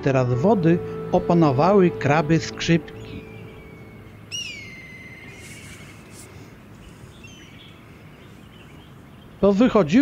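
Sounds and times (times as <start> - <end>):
open-air background sound: 0.0 - 10.0
bird whistled call: 2.9 - 9.0
faint short bird call: 4.3 - 7.7.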